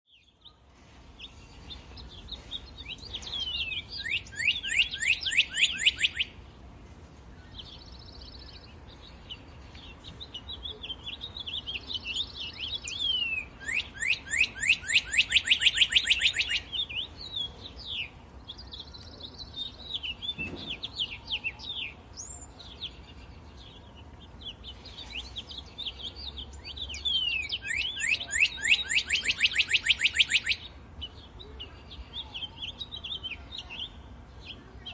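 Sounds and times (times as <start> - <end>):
bird chirps and whistles: 3.6 - 6.4, 12.5 - 16.7, 26.9 - 30.7.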